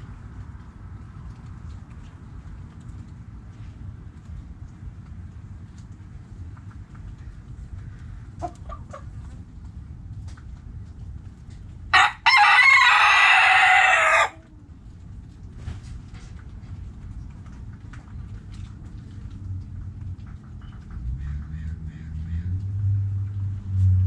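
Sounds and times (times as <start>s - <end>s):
faint hen clucks: 7.7s - 9.4s
rooster crowing: 12.0s - 14.6s.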